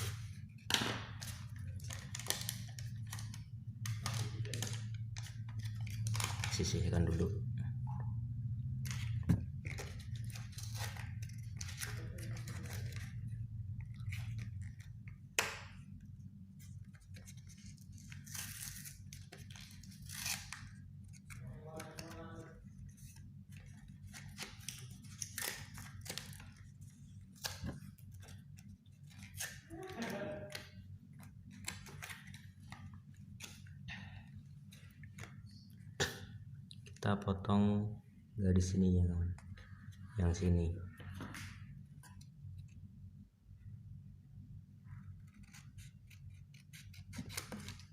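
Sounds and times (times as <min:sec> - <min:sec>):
cardboard snipping and tearing: 0:45.3 - 0:47.9.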